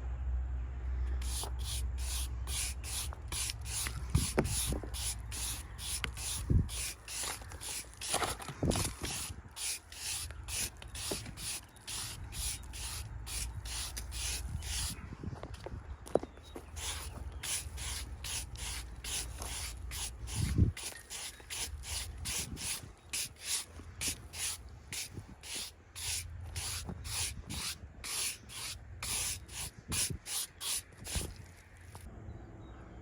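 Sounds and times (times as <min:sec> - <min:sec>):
short rasping strokes: 0:01.2 - 0:15.0, 0:16.6 - 0:32.1.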